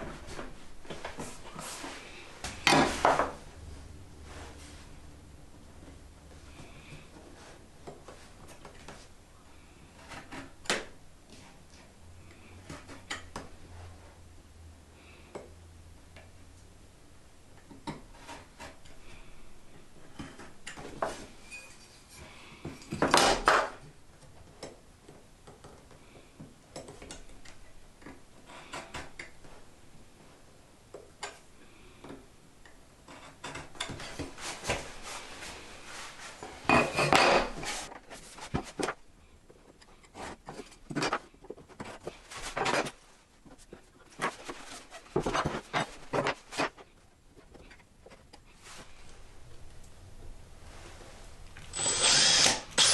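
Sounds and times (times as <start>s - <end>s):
wooden pieces and tools clattering: 36.2s - 48.4s.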